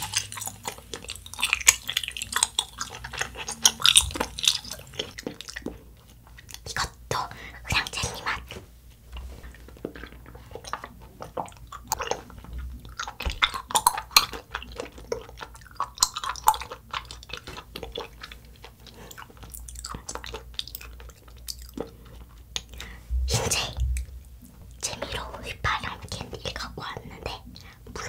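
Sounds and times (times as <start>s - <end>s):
chewing gummy candy: 0.0s - 8.6s, 9.2s - 23.0s.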